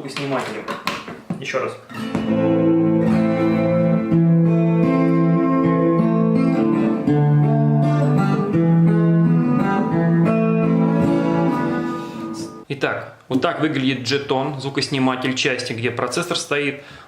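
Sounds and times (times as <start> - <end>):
acoustic guitar strumming chords: 1.9 - 12.6.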